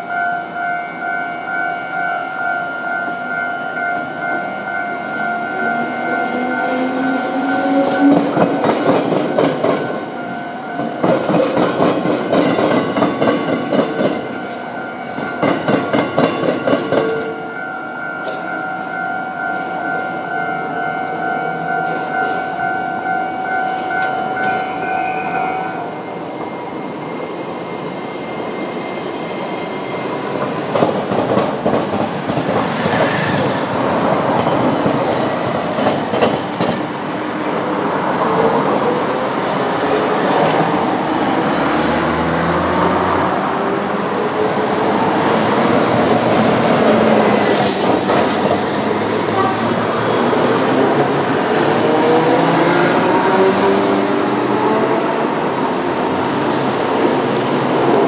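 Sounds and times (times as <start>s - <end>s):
level crossing warning bell: 0.0s - 30.7s
rail vehicle whine: 0.0s - 58.0s
road traffic passing: 1.3s - 15.3s, 30.1s - 58.0s.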